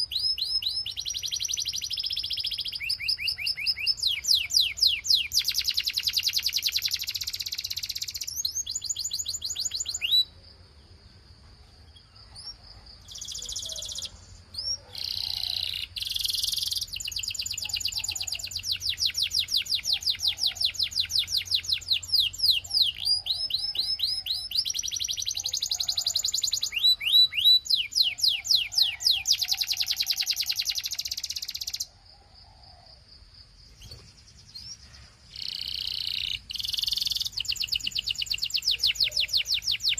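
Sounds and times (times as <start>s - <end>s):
canary singing in trills: 0.0s - 10.9s, 11.6s - 33.0s, 33.7s - 39.9s.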